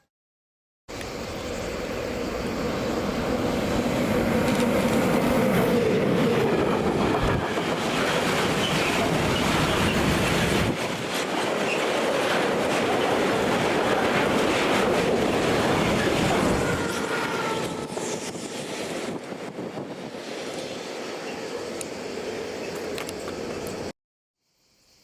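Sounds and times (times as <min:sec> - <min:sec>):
train wheels clattering: 0:04.2 - 0:18.8.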